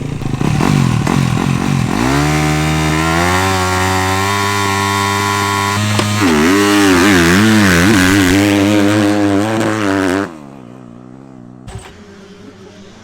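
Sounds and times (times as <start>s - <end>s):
motocross bike engine revving: 0.0s - 13.0s.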